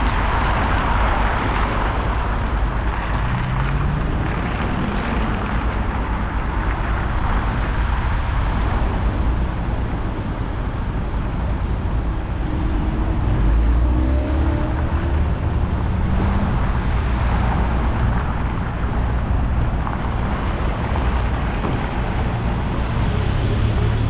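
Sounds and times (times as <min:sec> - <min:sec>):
road traffic rumble: 0:00.0 - 0:24.0
vehicle engine pulling away: 0:20.1 - 0:24.0.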